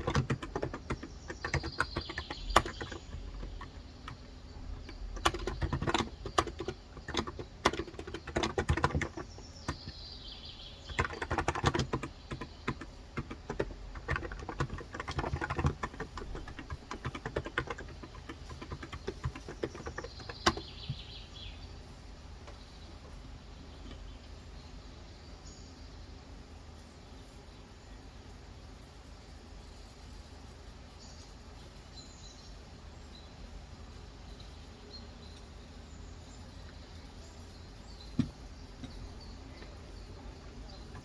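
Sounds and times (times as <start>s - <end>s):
keyboard typing: 0.0s - 10.0s, 10.9s - 21.1s, 40.7s - 41.0s.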